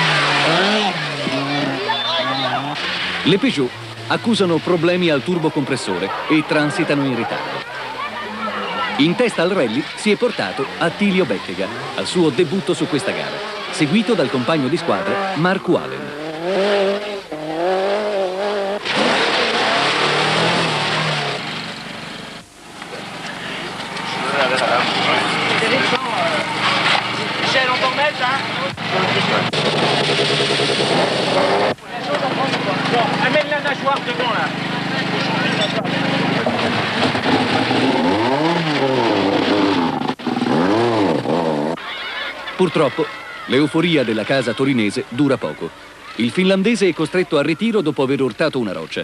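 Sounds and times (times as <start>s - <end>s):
loud rushing noise: 0.0s - 33.2s
car engine at high revs: 0.0s - 41.8s.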